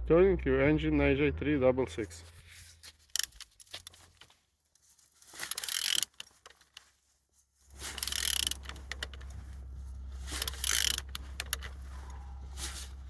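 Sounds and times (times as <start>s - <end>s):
engine ratcheting when turned by hand: 3.2s - 4.0s, 5.4s - 6.8s, 7.7s - 13.0s
steady low hum: 7.7s - 13.0s.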